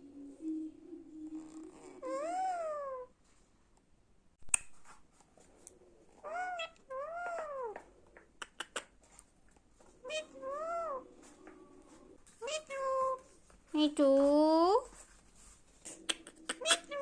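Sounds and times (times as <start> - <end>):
parakeet mewing calls: 6.2 - 7.8, 10.0 - 11.1, 12.4 - 13.2, 16.6 - 17.0.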